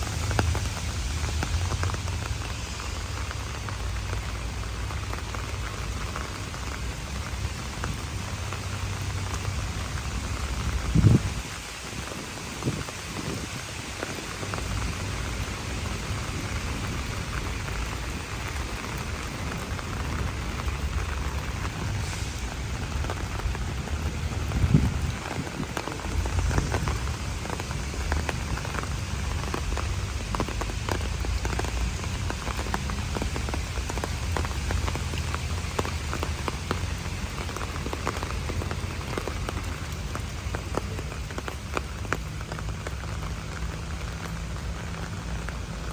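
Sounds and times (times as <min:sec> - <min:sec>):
rain drops ticking: 0:00.0 - 0:45.9.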